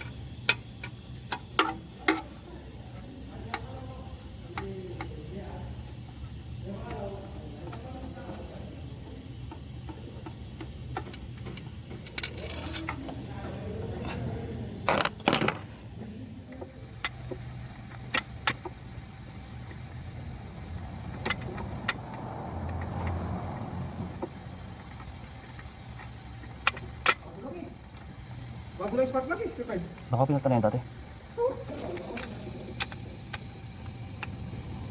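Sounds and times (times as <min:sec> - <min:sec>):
hand tools clinking on engine: 0:00.0 - 0:02.4, 0:09.4 - 0:14.2, 0:14.8 - 0:15.9
steady low hum: 0:00.0 - 0:34.9.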